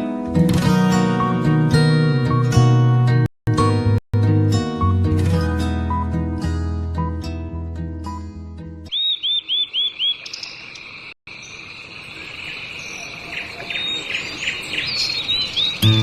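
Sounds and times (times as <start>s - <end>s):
bird chirping: 8.9s - 16.0s.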